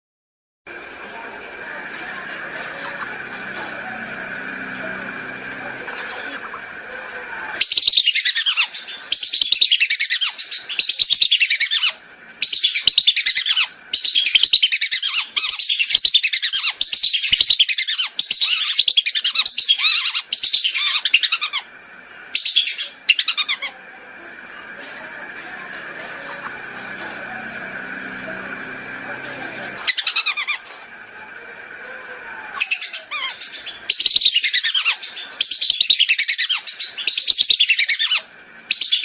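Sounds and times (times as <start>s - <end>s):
whistling ducks calling: 2.1s - 21.7s, 22.3s - 23.8s, 32.5s - 39.0s.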